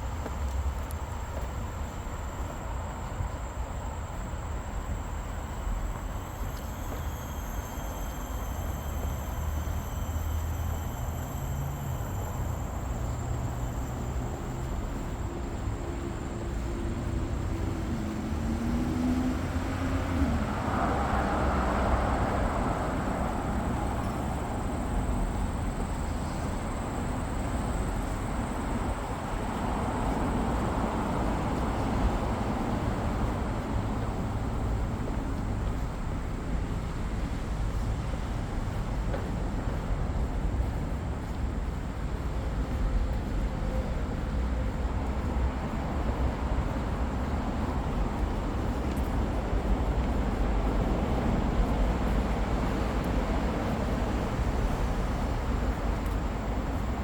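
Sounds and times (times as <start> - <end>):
low traffic rumble: 0.0 - 57.0
vehicle passing: 16.5 - 25.2.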